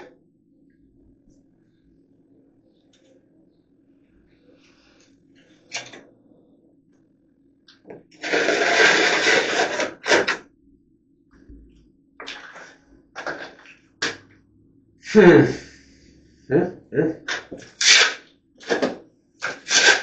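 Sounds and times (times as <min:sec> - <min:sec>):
drywall knife scraping: 0:08.2 - 0:10.4, 0:17.3 - 0:20.0.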